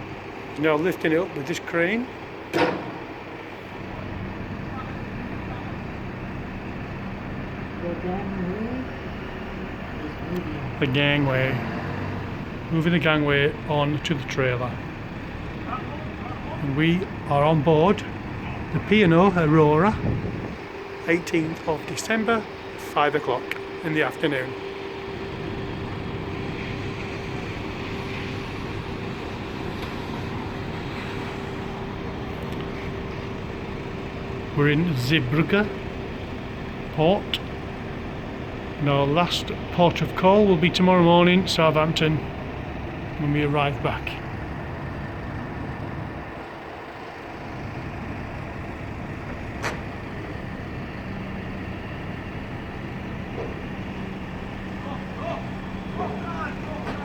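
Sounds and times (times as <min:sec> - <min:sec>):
engine rumble: 0:00.0 - 0:57.0
machinery drone: 0:00.0 - 0:57.0
mid-pitched hum: 0:12.2 - 0:57.0.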